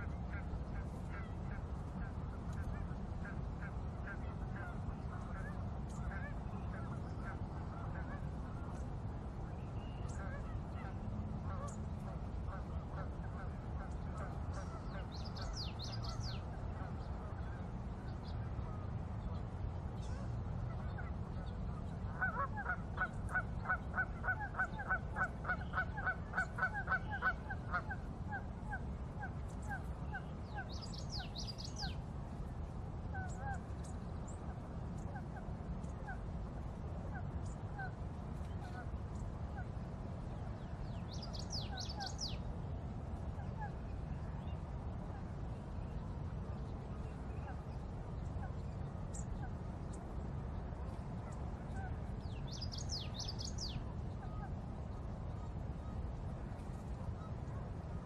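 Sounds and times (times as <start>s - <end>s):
low background rumble: 0.0s - 58.0s
bird honking calls: 22.1s - 28.8s.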